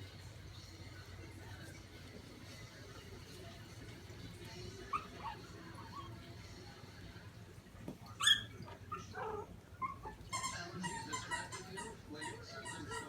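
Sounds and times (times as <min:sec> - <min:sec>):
puppies yipping and whining: 0:04.9 - 0:06.2, 0:08.1 - 0:13.0.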